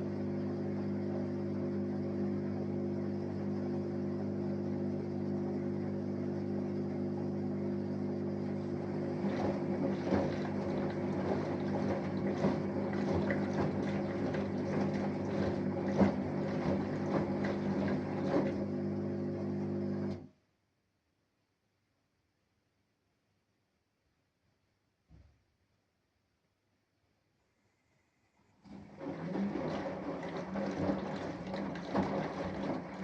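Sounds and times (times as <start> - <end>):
washing machine motor hum: 0.0 - 20.3, 28.6 - 33.0
water sloshing in drum: 8.4 - 18.8, 29.0 - 33.0.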